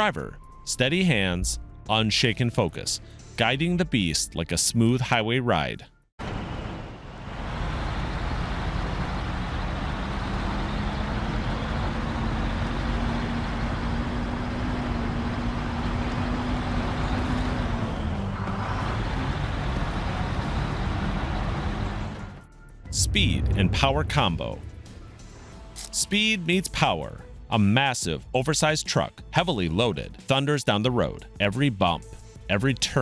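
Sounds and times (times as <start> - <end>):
road noise: 6.2 - 25.8
truck engine pulling under load: 7.3 - 22.4.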